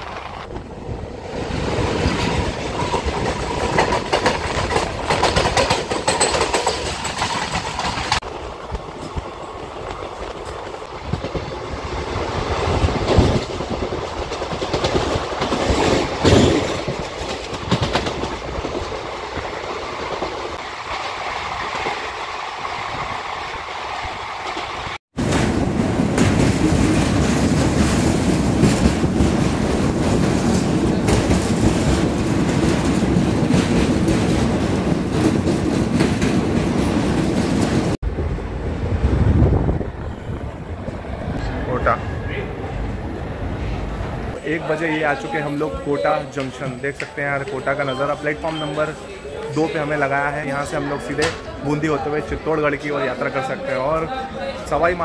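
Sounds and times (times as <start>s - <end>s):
train rushing noise: 0.0s - 55.0s
train wheels clattering on rail joints: 1.5s - 20.6s, 24.4s - 38.0s.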